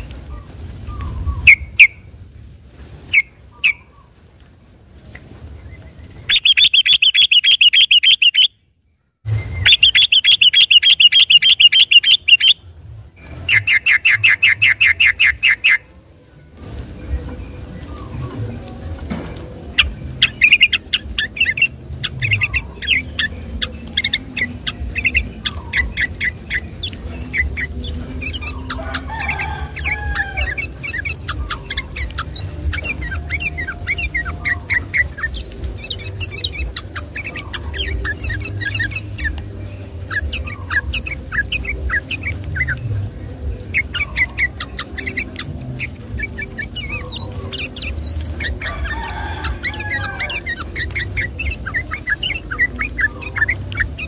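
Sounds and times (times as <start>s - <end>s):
bird singing bubbling chirps: 0.0s - 2.2s, 3.0s - 4.2s, 5.5s - 15.9s, 17.2s - 54.0s
low background rumble: 0.0s - 6.5s, 10.7s - 13.7s, 15.3s - 54.0s.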